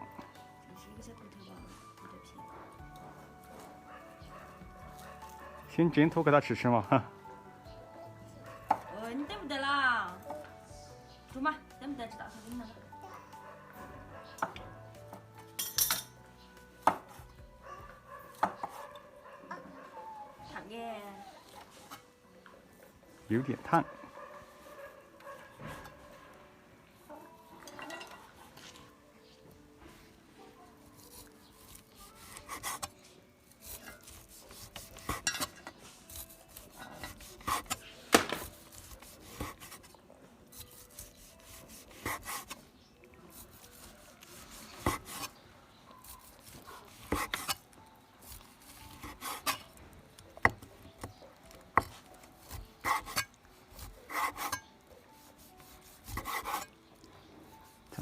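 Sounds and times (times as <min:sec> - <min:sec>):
knife scraping: 0:30.9 - 0:39.9, 0:40.5 - 0:42.6, 0:43.3 - 0:49.8, 0:51.5 - 0:56.8.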